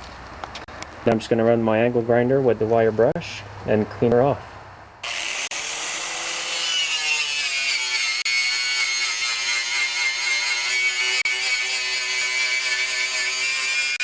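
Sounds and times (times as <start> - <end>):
wire brush grinder scrubbing metal: 5.0 - 14.0.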